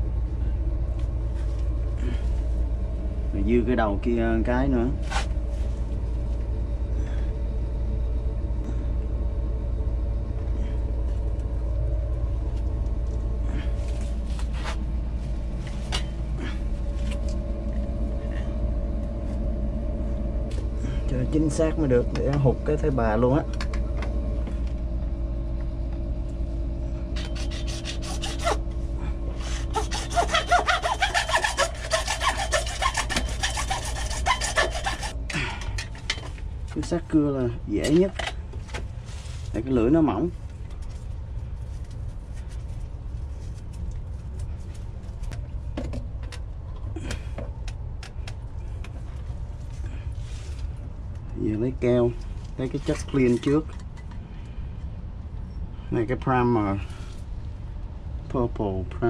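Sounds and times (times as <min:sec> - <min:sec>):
steady low rumble: 0:00.0 - 0:59.0
hand saw cutting plastic pipe: 0:27.2 - 0:28.6, 0:29.4 - 0:35.2.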